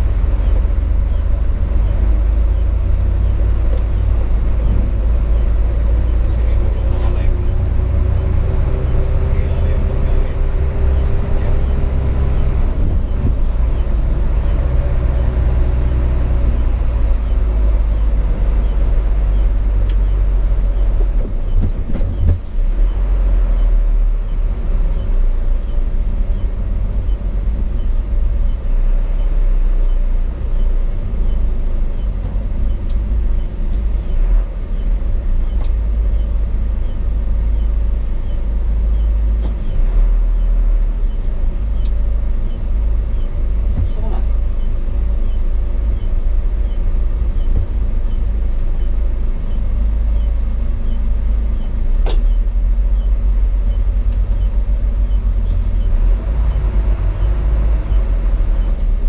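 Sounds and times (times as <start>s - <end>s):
truck diesel engine rumbling: 0.0s - 59.0s
short high beep: 21.5s - 22.2s.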